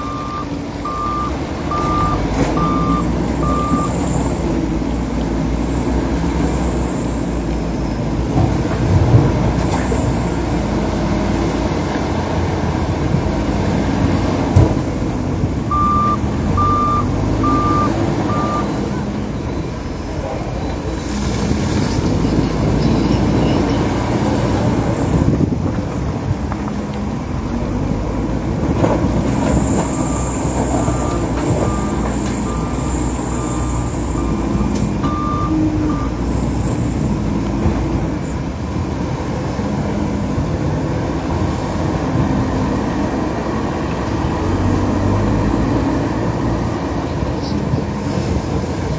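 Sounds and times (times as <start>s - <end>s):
reversing alarm beeping: 0.0s - 4.4s, 15.7s - 19.7s, 29.6s - 36.9s
diesel engine running: 0.0s - 48.9s.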